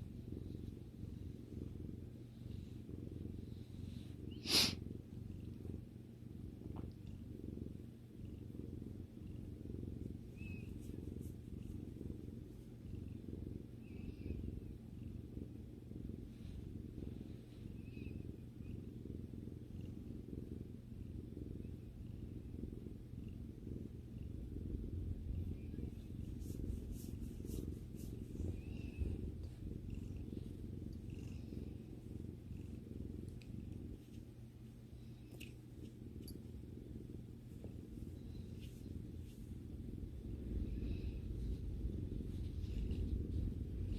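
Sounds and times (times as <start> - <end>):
cat purring: 0.0 - 43.9.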